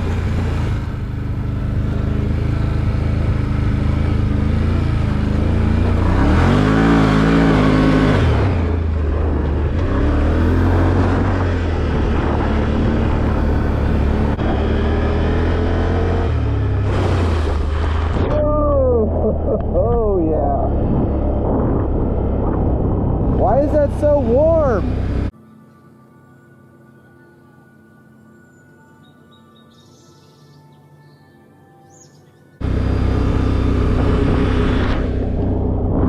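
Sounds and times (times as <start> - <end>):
off-road vehicle engine revving: 0.0 - 25.3, 32.6 - 36.0.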